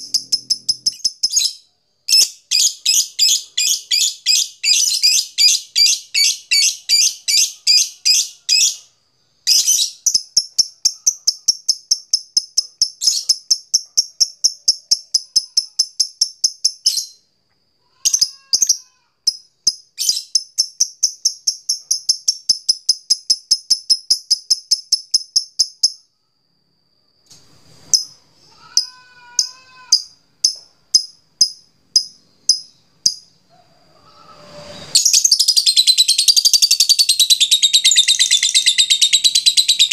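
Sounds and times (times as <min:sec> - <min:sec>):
bird high-pitched chatter: 0:00.0 - 0:08.8, 0:09.5 - 0:17.1, 0:35.0 - 0:39.9.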